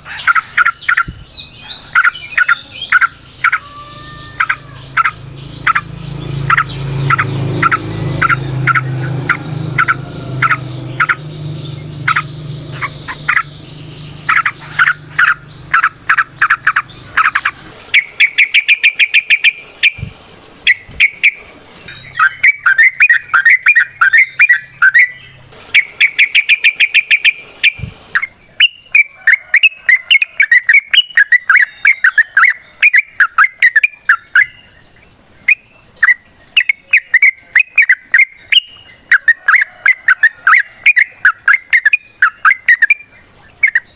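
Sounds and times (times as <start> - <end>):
low steady hum: 0.0 - 32.8
bird singing bubbly chatter: 0.0 - 43.9.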